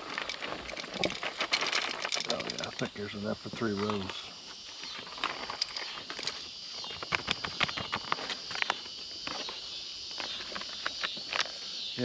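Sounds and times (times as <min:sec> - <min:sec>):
small clicks and rattles: 0:00.0 - 0:11.6
insects droning: 0:00.0 - 0:12.0.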